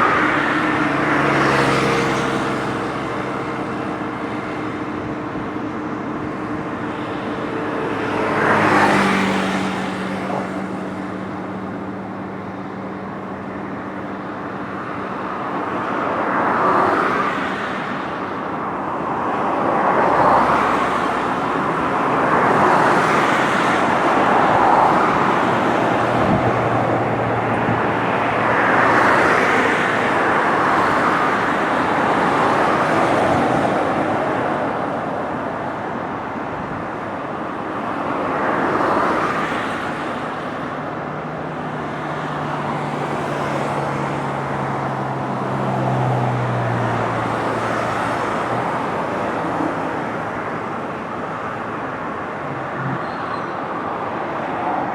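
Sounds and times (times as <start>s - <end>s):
traffic passing on bridge: 0.0s - 54.9s.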